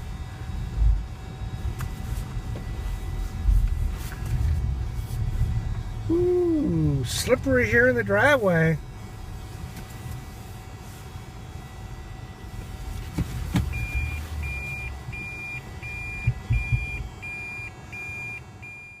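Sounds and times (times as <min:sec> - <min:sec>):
car rumble: 0:00.0 - 0:19.0
car warning chime beeping: 0:04.6 - 0:19.0.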